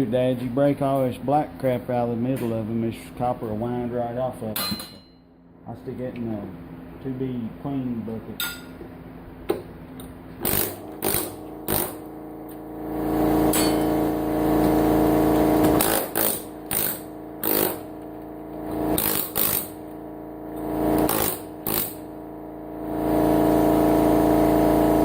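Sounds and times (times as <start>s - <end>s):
air hammer chiseling: 10.4s - 12.1s, 13.4s - 18.1s, 18.7s - 20.0s, 20.6s - 22.2s.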